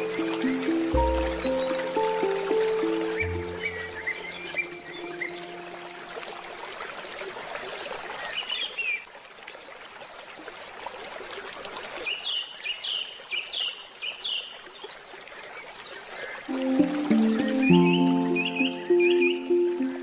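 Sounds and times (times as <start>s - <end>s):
birds chirping: 0.0s - 6.6s, 13.5s - 20.0s
stream water flowing: 0.0s - 20.0s.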